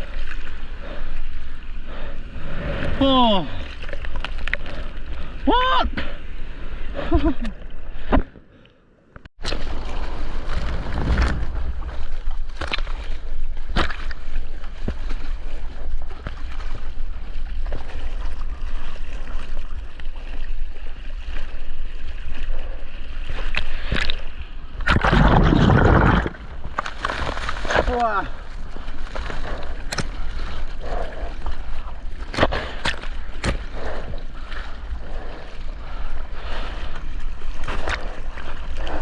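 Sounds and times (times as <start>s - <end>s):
sea water sloshing and splashing: 0.0s - 5.4s, 9.4s - 39.0s
rush of water: 9.4s - 39.0s.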